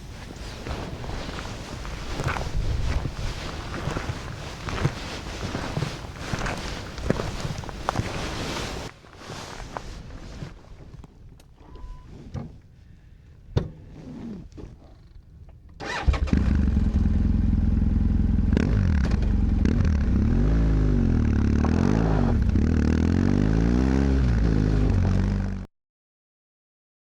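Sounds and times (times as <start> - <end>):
motorcycle engine starting and idling: 15.7 - 23.5.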